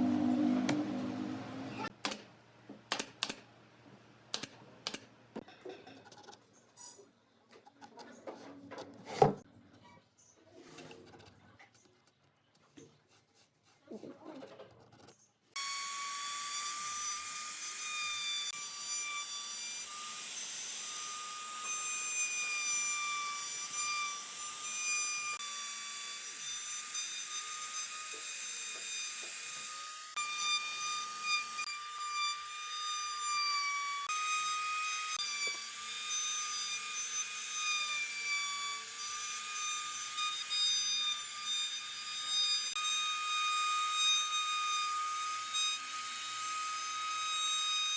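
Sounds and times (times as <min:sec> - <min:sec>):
power tool motor whining: 0:00.0 - 0:01.9, 0:15.6 - 0:47.9.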